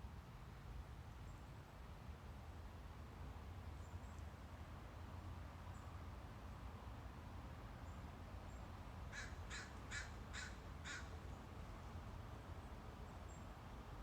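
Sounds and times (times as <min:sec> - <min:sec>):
crow cawing: 0:09.1 - 0:11.1.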